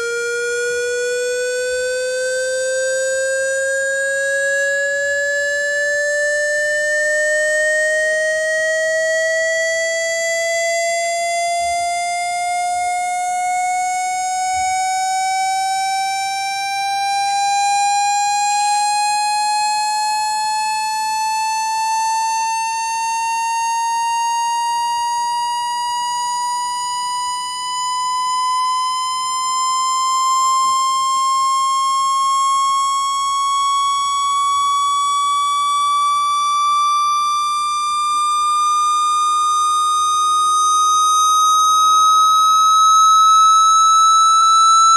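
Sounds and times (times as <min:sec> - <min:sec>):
buzzy electronic tone rising: 0:39.3 - 0:44.9.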